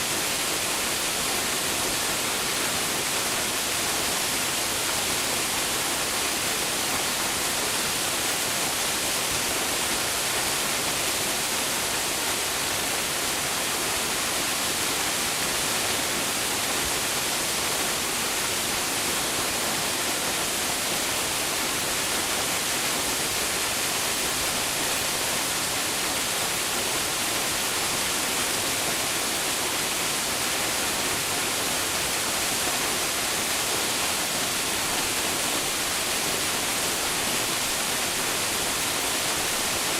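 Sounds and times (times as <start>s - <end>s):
waterfall splashing: 0.0s - 39.9s.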